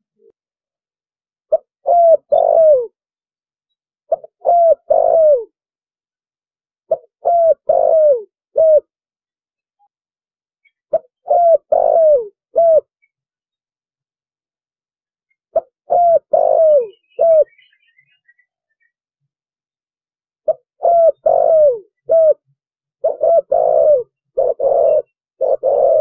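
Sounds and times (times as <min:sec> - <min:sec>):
dove cooing: 0:01.5 - 0:03.0, 0:04.1 - 0:05.6, 0:06.9 - 0:08.9, 0:10.9 - 0:13.0, 0:15.5 - 0:18.4, 0:20.4 - 0:26.0.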